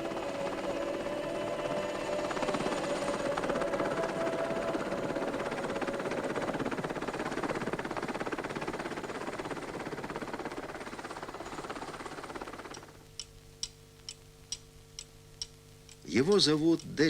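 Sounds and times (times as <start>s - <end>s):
engine throbbing: 0.0s - 10.7s.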